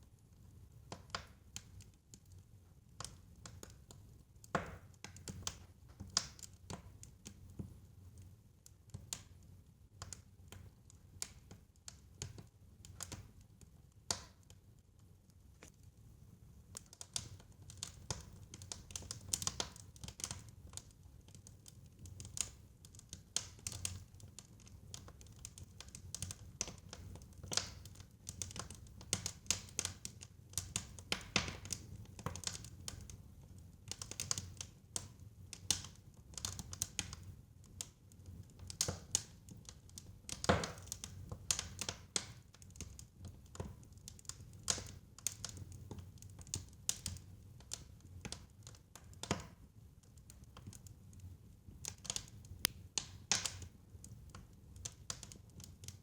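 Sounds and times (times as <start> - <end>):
wood fire crackling: 0.2 - 56.0.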